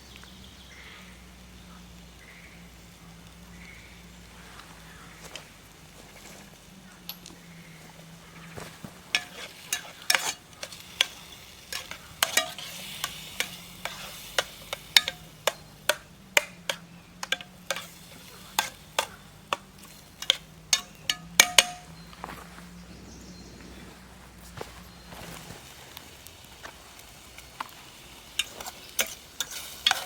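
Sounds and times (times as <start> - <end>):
food sizzling: 7.7 - 21.9, 25.1 - 30.0
utensil scraping metal pot: 9.1 - 21.9, 28.2 - 30.0.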